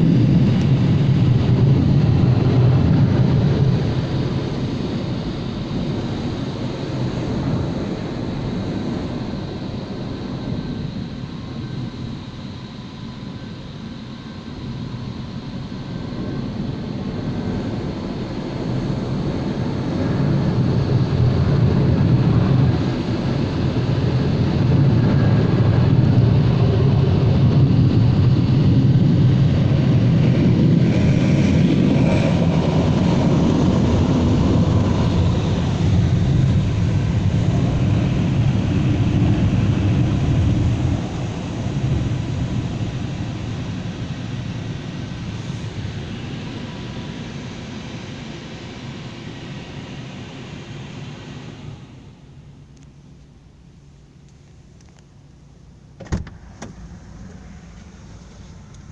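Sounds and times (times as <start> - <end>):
car wash machinery rumbling: 55.4 - 58.9.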